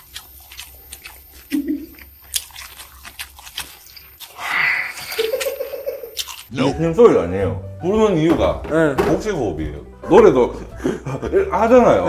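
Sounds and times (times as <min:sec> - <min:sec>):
wet chewing: 0:00.0 - 0:06.5.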